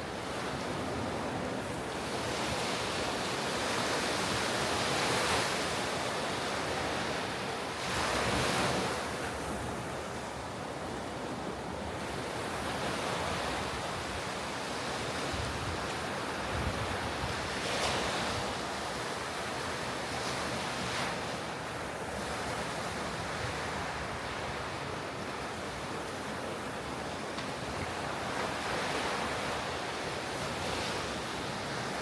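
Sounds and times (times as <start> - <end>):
wind on microphone: 15.2 - 18.6.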